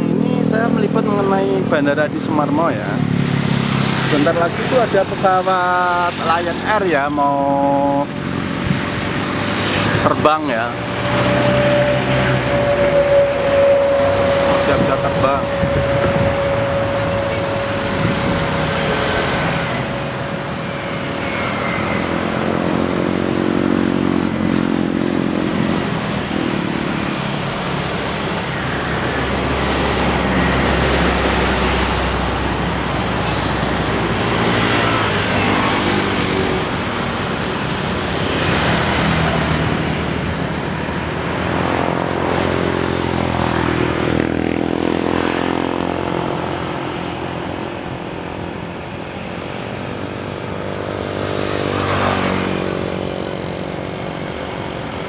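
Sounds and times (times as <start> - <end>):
vehicles passing: 0.0 - 55.0
engine low hum: 7.4 - 34.3.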